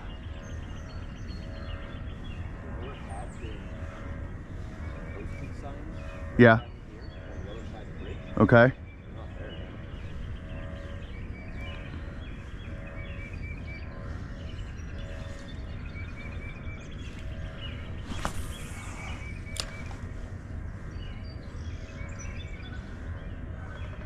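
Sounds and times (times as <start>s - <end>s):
small birds chirping: 0.0s - 24.0s
fishing rod cast whoosh: 18.0s - 20.0s
sharp click: 19.5s - 19.9s.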